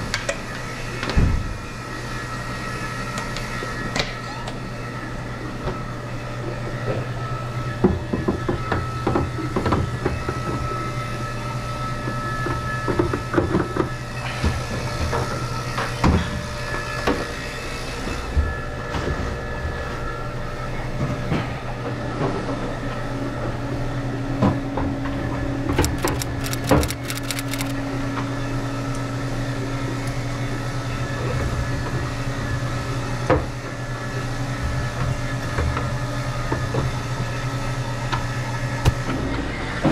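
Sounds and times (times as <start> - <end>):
low motor hum: 22.0 - 29.9
rapid clicks: 25.7 - 27.8.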